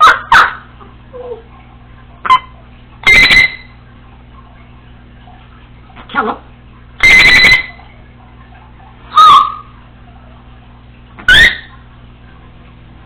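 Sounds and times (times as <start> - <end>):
parrot whistled calls: 2.2 - 3.8, 7.0 - 7.9, 9.1 - 9.8, 11.2 - 11.9.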